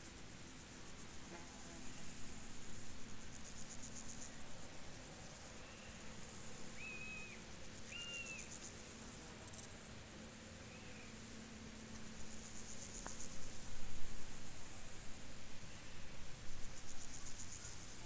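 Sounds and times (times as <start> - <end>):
field crickets chirping: 0.0 - 18.0
whistled bird notes: 6.8 - 8.5.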